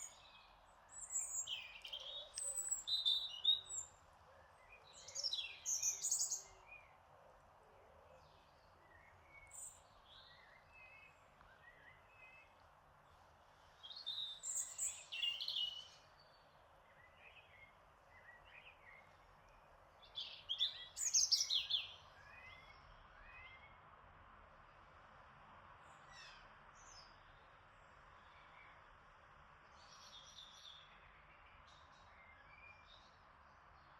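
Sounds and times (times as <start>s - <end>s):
birds singing: 0.0s - 6.8s, 13.8s - 19.1s, 20.0s - 23.6s
soft breeze hiss: 0.0s - 33.9s.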